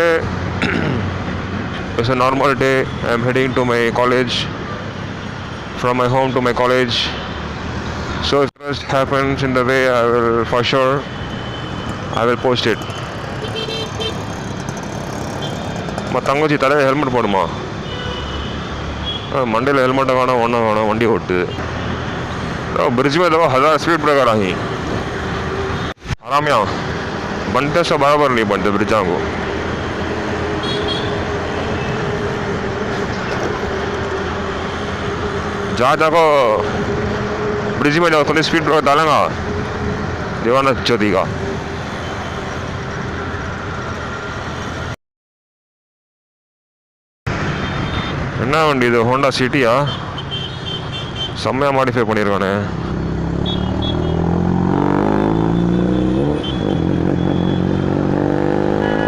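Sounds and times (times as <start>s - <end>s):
wind and road noise: 0.0s - 45.0s, 47.3s - 59.0s
motorcycle engine hum: 11.0s - 17.2s
vehicle engine accelerating: 12.7s - 16.4s, 52.8s - 59.0s.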